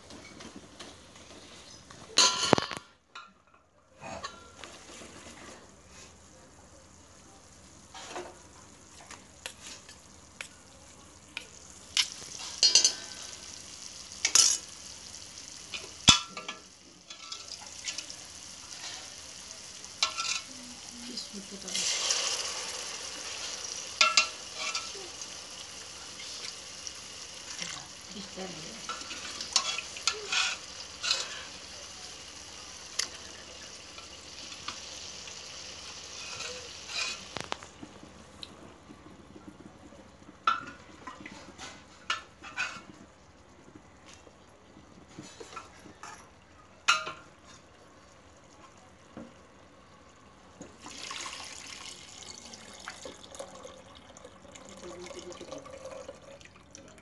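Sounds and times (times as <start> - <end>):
masala sizzling in oil: 4.3 - 38.9, 40.1 - 53.3.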